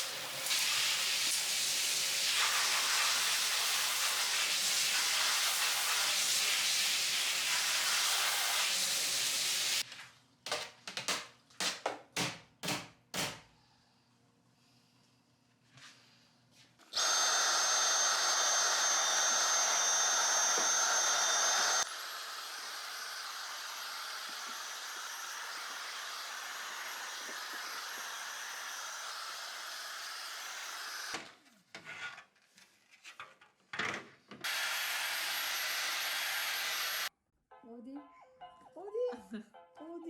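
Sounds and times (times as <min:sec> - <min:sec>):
small electric motor whirring: 0:17.0 - 0:31.2.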